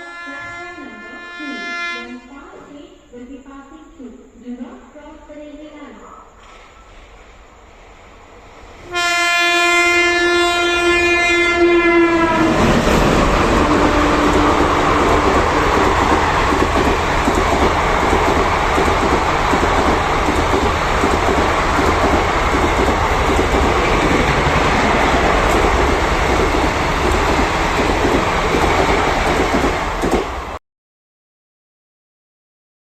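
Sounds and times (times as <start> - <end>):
train horn: 0.0 - 2.5, 8.8 - 15.4
train coaches rushing past: 6.3 - 30.6.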